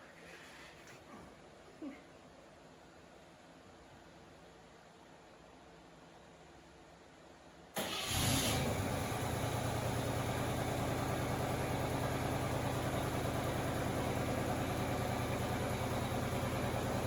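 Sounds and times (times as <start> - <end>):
car engine starting and idling: 7.8 - 17.0.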